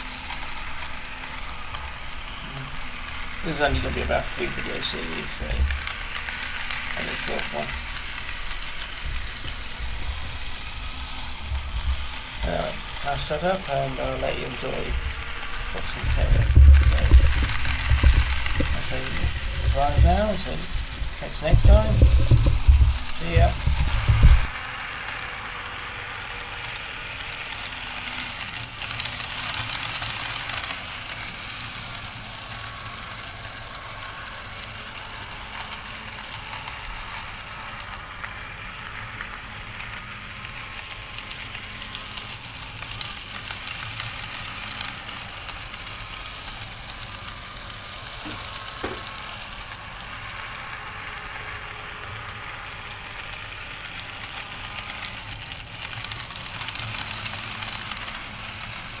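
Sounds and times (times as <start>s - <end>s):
faint wavering whine: 0.0s - 27.8s
model train whirring hiss: 0.0s - 59.0s.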